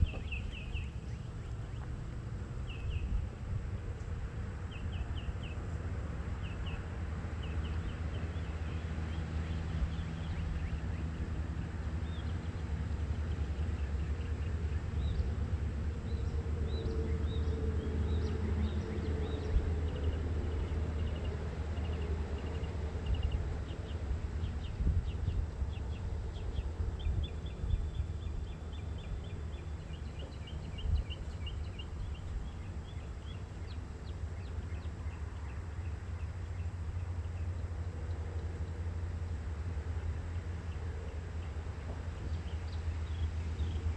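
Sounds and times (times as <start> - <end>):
small birds chirping: 0.0 - 1.9, 16.1 - 37.7.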